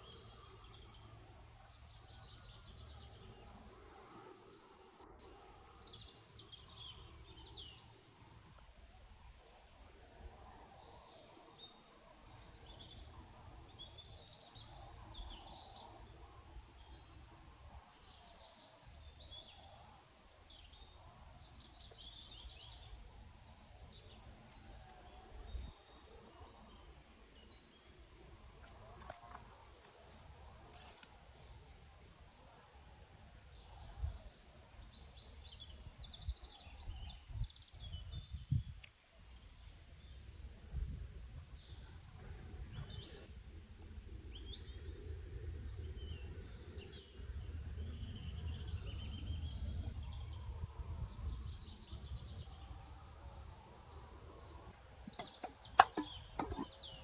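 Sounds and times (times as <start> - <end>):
small birds chirping: 0.0 - 57.0
clicks and rustles: 28.6 - 31.5, 54.8 - 56.8.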